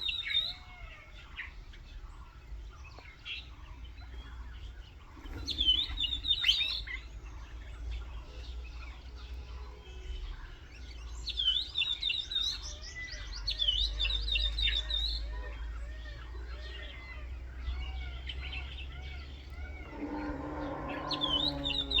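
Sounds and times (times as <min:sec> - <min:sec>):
birds chirping: 0:00.0 - 0:22.0
bird warbling: 0:18.2 - 0:22.0.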